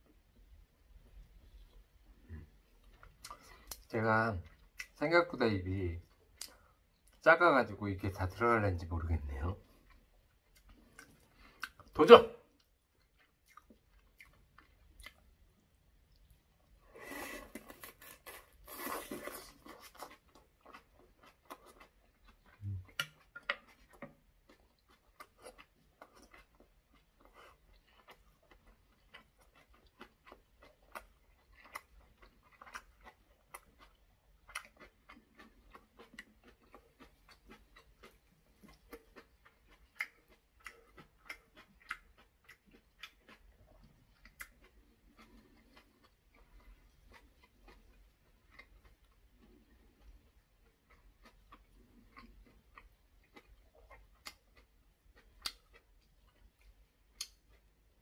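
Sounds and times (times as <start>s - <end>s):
wet chewing smacks and clicks: 2.7s - 5.0s, 9.2s - 16.8s, 18.8s - 58.0s.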